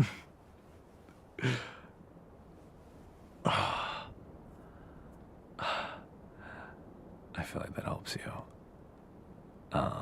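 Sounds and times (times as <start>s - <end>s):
person sighing: 1.4s - 1.8s, 3.4s - 4.2s.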